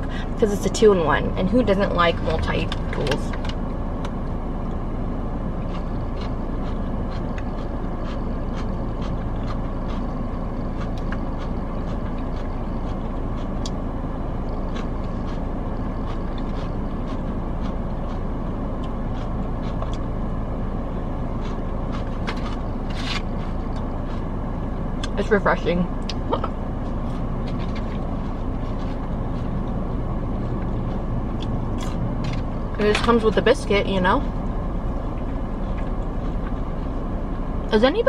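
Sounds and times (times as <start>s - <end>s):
car air conditioning fan blowing: 0.0s - 38.0s.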